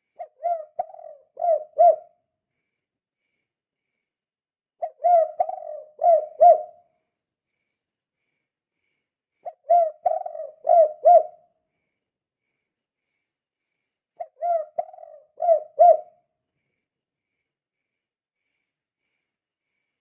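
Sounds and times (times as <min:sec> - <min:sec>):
dove cooing: 0:00.0 - 0:02.1, 0:04.8 - 0:06.8, 0:09.4 - 0:11.4, 0:14.2 - 0:16.2.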